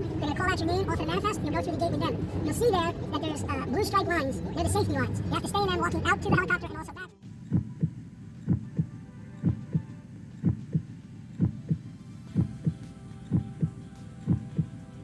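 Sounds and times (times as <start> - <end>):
faint steady hum: 7.2 - 15.0
heartbeat thumps: 7.3 - 14.9.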